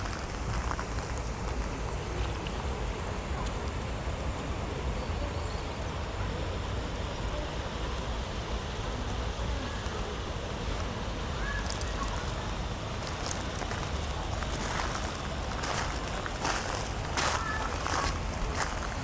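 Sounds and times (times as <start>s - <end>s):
light rain hiss: 7.9s - 19.0s.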